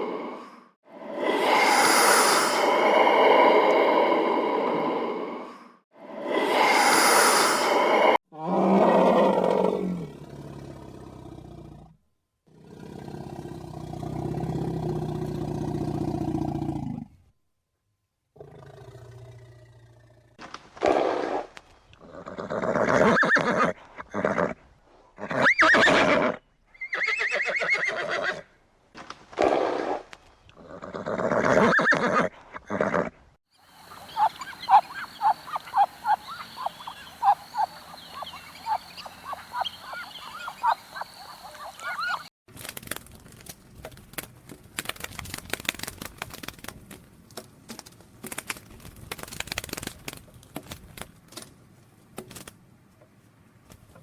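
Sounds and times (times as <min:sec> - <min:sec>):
horse neighing: 0:33.8 - 0:42.3.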